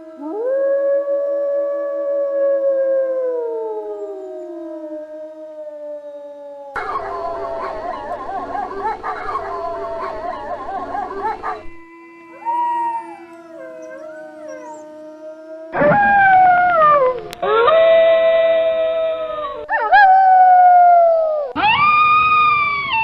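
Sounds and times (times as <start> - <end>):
wolves howling: 0.0 - 23.0.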